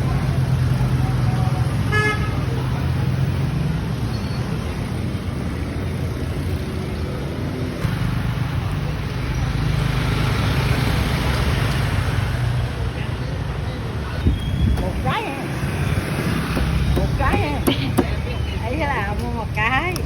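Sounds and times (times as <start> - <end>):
traffic noise: 0.0 - 20.0
engine hum: 4.7 - 20.0.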